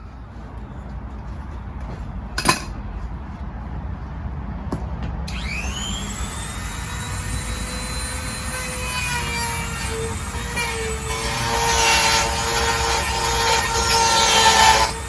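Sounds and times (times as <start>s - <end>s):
power tool whine: 5.3s - 15.0s.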